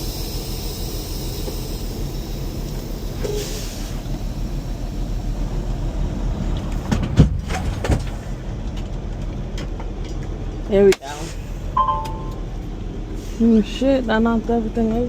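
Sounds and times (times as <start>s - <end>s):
diesel truck engine idling: 0.0s - 7.2s.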